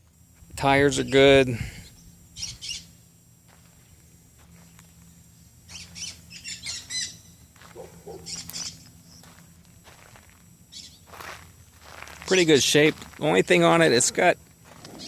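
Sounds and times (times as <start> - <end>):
birds chirping: 0.8 - 9.8, 10.6 - 14.1
bird squawks: 2.4 - 3.0, 5.7 - 9.3, 10.7 - 11.1.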